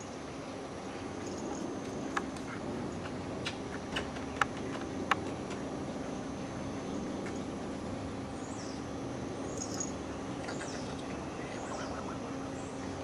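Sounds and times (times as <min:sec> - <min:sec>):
steady low hum: 0:00.0 - 0:13.0
bird chirping: 0:08.3 - 0:13.0.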